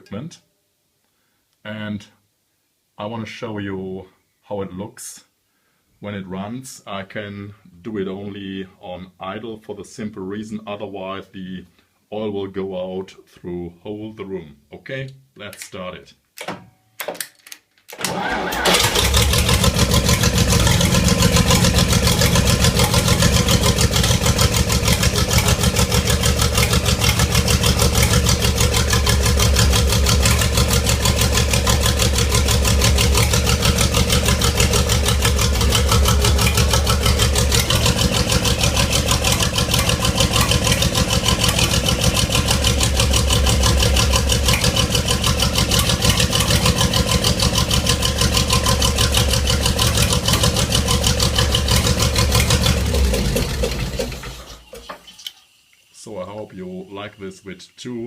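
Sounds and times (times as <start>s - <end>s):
tank engine idling: 18.6s - 54.6s.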